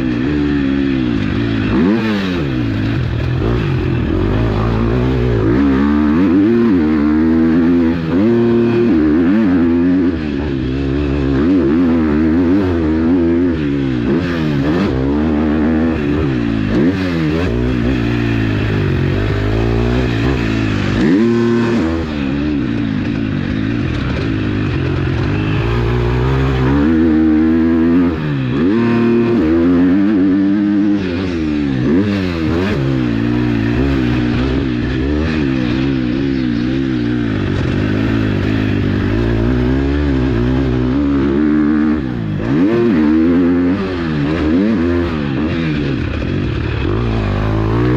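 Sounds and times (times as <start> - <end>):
motocross bike engine revving: 0.0 - 47.9.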